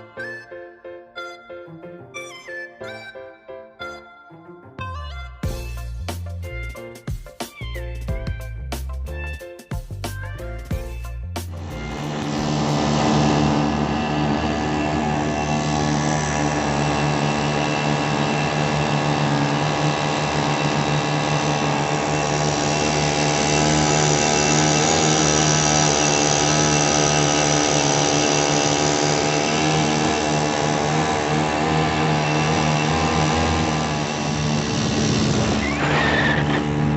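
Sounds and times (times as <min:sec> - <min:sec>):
small jet motor whining: 0:11.5 - 0:36.9.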